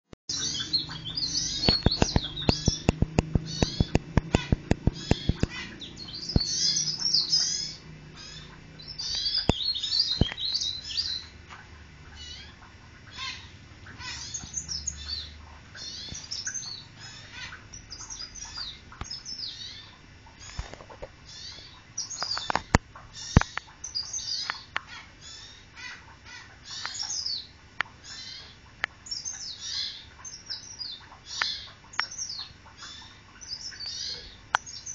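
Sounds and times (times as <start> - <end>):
bird chirping and trilling: 0.3 - 11.4, 12.1 - 34.9
sharp clicks: 1.6 - 5.6.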